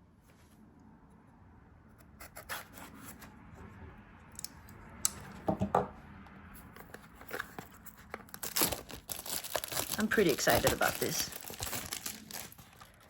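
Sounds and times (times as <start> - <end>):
cardboard and plastic wrapping scraping: 6.8 - 13.0.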